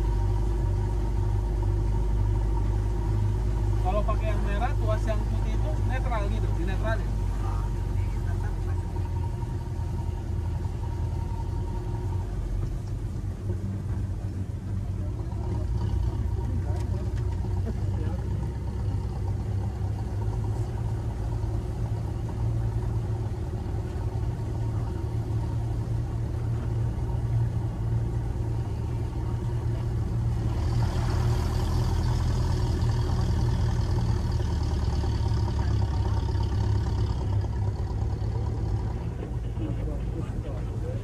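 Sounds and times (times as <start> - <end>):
car engine running: 0.0 - 41.0.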